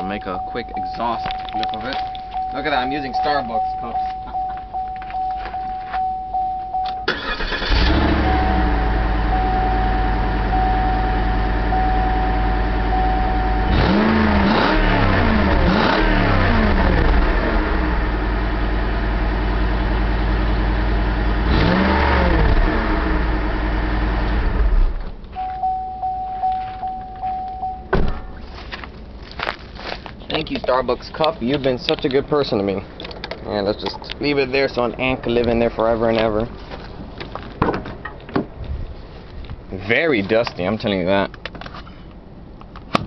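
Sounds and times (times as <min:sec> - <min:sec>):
electronic warning beep: 0:00.1 - 0:07.2, 0:08.2 - 0:14.0, 0:25.4 - 0:28.3
car engine idling and revving: 0:06.4 - 0:38.6
car engine cranking: 0:07.0 - 0:19.6, 0:20.5 - 0:25.4.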